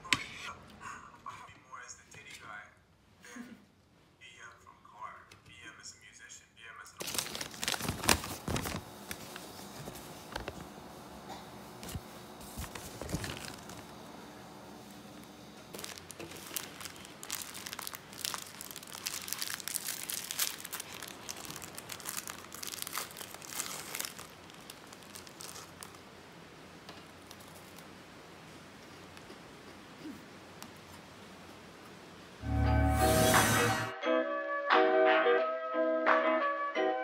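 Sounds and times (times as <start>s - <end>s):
quiet hiss: 0.0s - 33.9s
crinkling and crackling handling: 7.0s - 29.8s.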